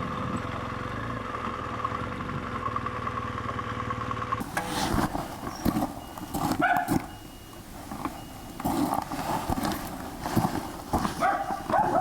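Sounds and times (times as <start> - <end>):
dog barking: 6.6 - 7.2, 11.1 - 12.0.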